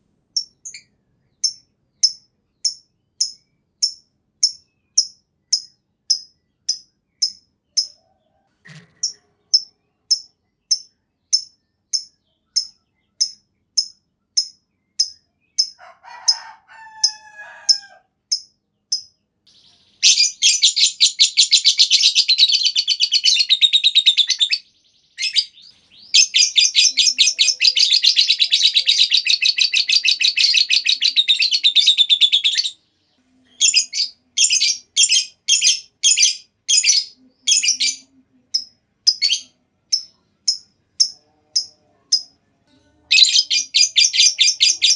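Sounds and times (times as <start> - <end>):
lovebird chirping: 0.3 - 15.8, 17.0 - 44.9
lovebird chattering trills: 25.2 - 32.8, 43.1 - 44.9.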